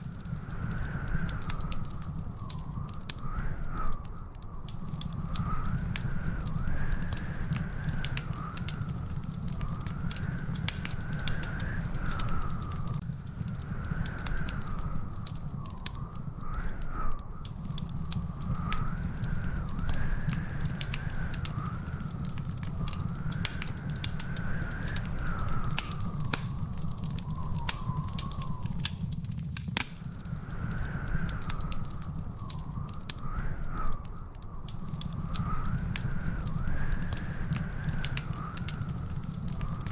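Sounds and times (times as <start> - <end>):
wood fire crackling and popping: 0.0 - 39.9
thin wavering whistle: 24.3 - 29.2.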